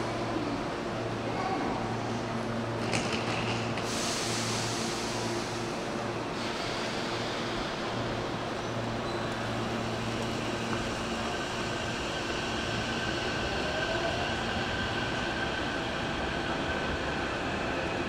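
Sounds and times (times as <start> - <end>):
electric train rumble and hum: 0.0 - 18.0
high thin train whine: 0.0 - 18.0.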